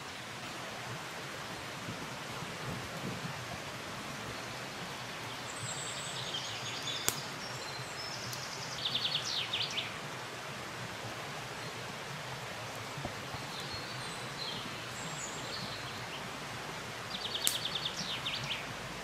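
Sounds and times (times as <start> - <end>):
rushing forest noise: 0.0 - 19.0
sharp crack: 7.0 - 7.2, 17.4 - 17.7.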